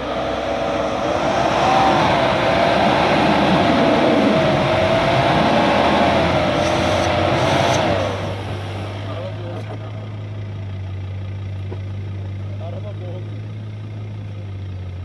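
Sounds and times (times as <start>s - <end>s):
engine revving high under load: 0.0s - 9.8s.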